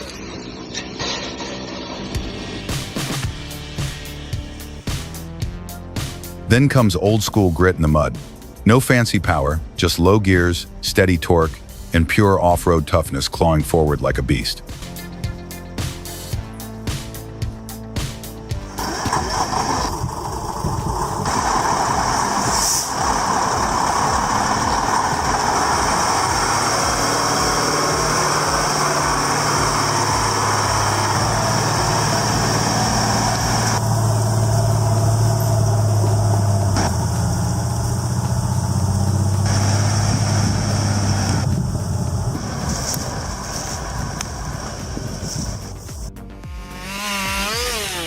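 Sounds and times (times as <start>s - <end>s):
heavy vehicle engine under load: 18.4s - 46.1s
low drone: 18.5s - 48.0s.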